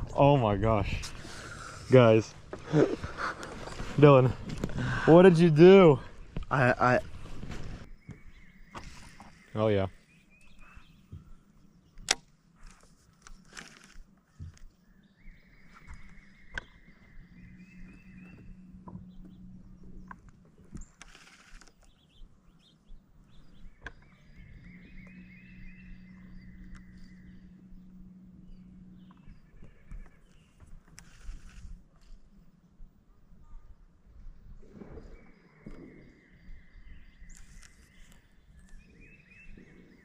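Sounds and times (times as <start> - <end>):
small clicks of tackle: 11.9 - 14.8, 20.0 - 22.0, 30.0 - 32.3.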